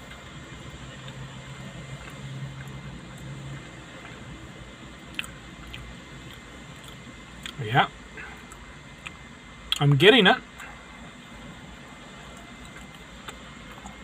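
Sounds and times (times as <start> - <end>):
steady low hum: 0.0 - 14.0
person chewing food: 5.0 - 7.6, 12.3 - 14.0.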